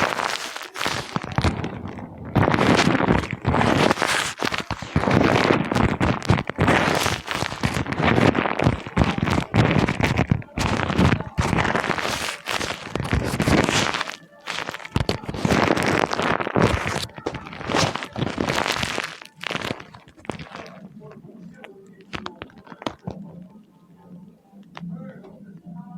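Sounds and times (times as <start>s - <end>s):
paper crumpling: 0.0s - 23.2s.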